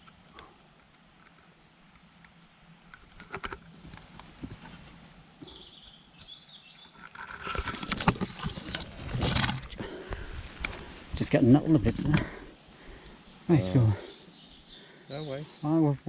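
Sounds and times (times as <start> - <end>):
rustling leaves and undergrowth: 0.0 - 16.0
bird singing: 2.8 - 7.5, 13.1 - 16.0.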